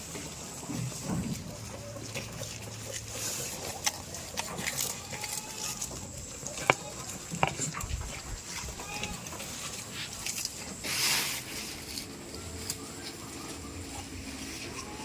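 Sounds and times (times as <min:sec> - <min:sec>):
animal sounds: 0:00.0 - 0:15.0
sharp clicks and knocks: 0:06.6 - 0:07.9.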